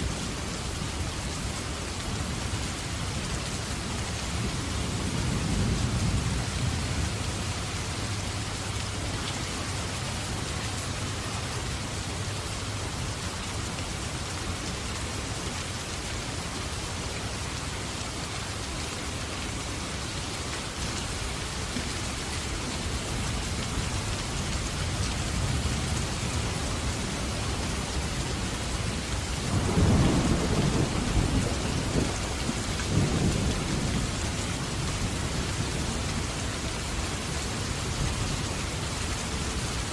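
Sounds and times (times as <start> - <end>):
steady rain falling: 0.0 - 39.9
rolling thunder: 29.4 - 35.3.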